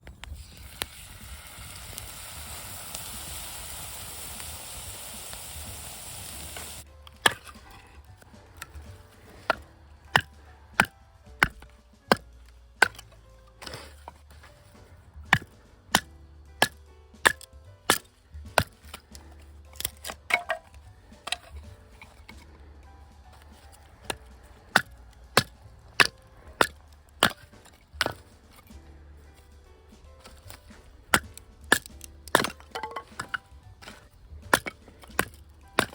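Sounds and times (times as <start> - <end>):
hatchet splitting firewood: 0.0 - 35.9
steady hiss: 0.2 - 6.9.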